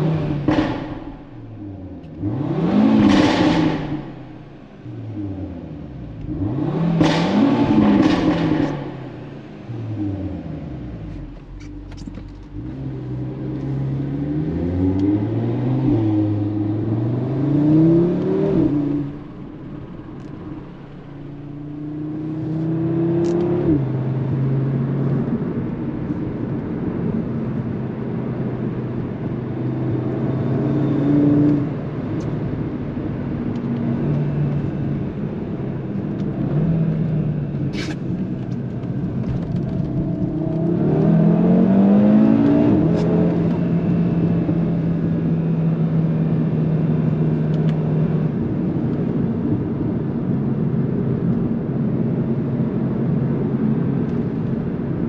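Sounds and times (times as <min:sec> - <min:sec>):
car engine accelerating through gears: 0:00.0 - 0:55.0
exhaust cracks: 0:07.0 - 0:09.4.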